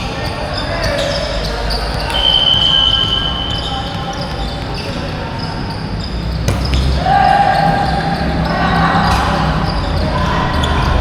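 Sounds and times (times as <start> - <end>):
players' voices: 0.0 - 11.0
sneakers squeaking on court: 0.0 - 11.0
volleyball hit: 6.4 - 8.0.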